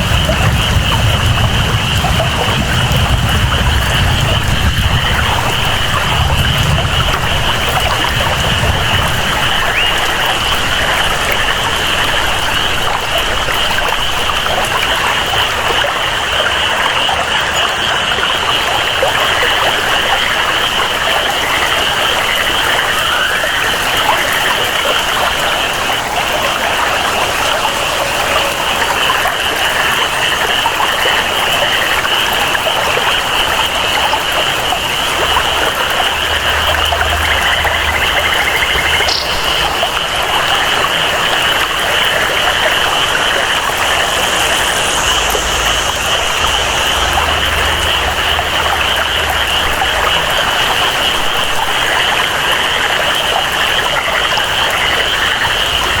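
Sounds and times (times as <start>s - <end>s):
flowing water: 0.0s - 56.0s
rain: 0.0s - 56.0s
high-pitched chorus of jungle creatures: 21.3s - 32.2s, 32.8s - 51.0s.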